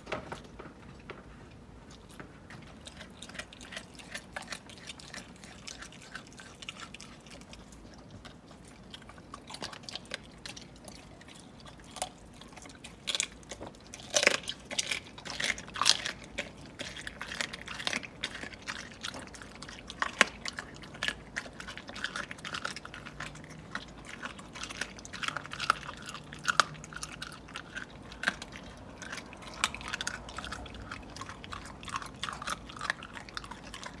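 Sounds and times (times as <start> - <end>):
dog chewing and licking: 0.0 - 34.0.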